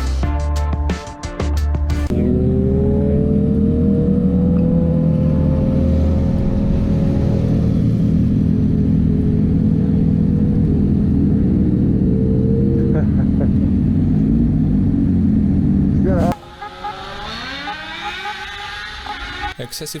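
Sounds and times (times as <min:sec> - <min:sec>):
music: 0:00.0 - 0:02.2
motorcycle engine accelerating: 0:01.9 - 0:19.6.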